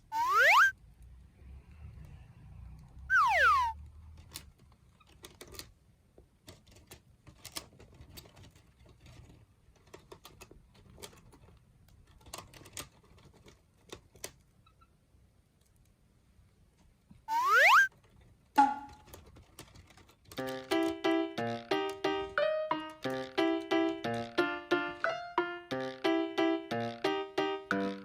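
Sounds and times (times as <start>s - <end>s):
falling whistle-like tone: 0.1s - 0.7s, 3.1s - 3.8s, 17.3s - 17.9s.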